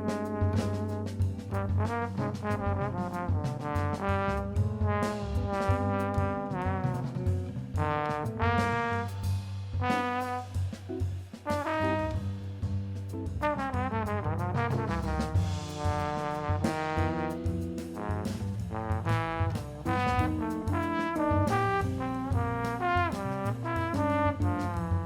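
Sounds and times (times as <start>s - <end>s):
backing track with bass line: 0.0s - 25.0s
wind instrument melody: 19.9s - 24.6s.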